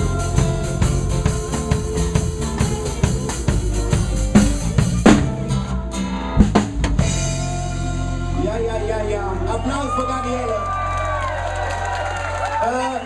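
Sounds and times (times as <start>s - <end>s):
heavy drum hits: 0.0s - 8.0s
live band playing: 0.0s - 13.0s.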